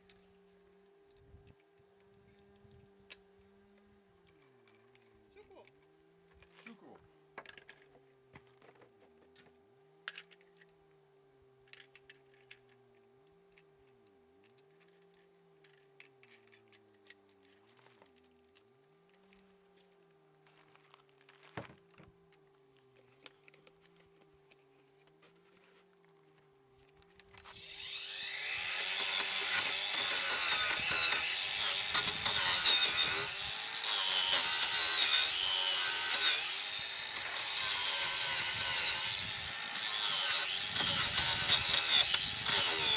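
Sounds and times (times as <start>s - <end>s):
saw cutting through wood: 27.4s - 42.9s.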